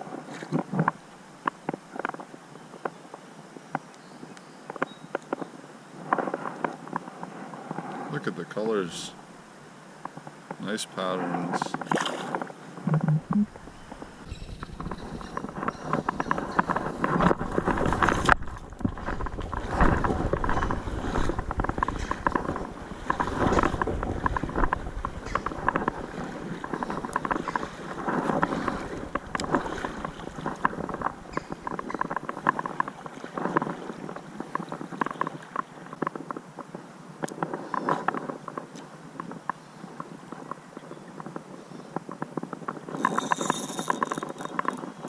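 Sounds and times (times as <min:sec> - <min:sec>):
water sloshing and splashing: 0:11.7 - 0:36.3.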